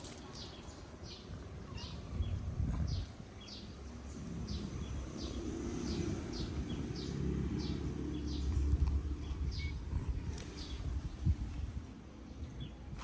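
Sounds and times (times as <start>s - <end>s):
bird chirping: 0.0s - 11.2s.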